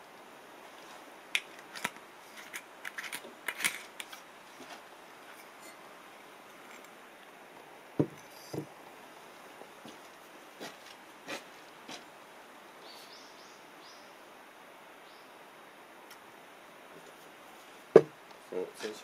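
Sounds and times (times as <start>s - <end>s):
dull thumps: 8.0s - 8.7s.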